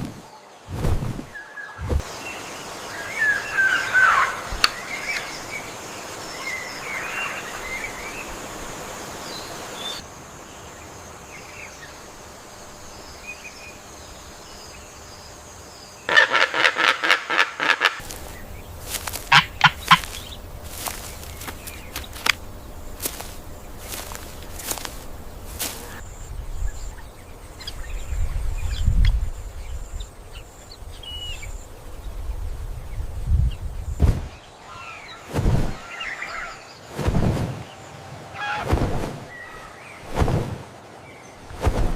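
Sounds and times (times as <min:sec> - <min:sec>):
forest hiss: 0:00.0 - 0:41.9
bird calls: 0:01.3 - 0:08.5, 0:16.0 - 0:31.7, 0:34.3 - 0:40.2.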